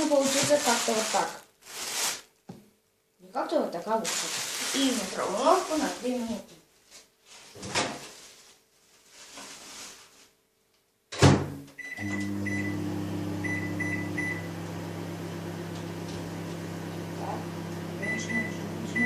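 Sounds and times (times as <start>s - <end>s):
microwave humming: 11.8s - 19.0s
keypad beeps: 18.0s - 19.0s.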